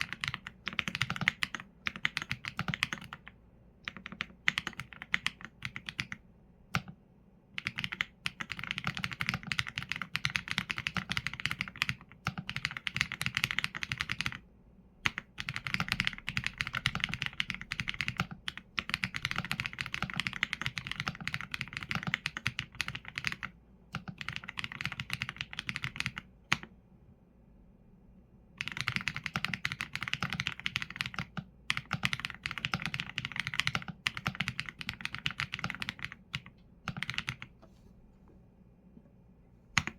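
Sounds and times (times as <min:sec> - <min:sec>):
mechanical keyboard typing: 0:00.0 - 0:07.0, 0:07.6 - 0:14.4, 0:15.0 - 0:26.7, 0:28.6 - 0:37.5.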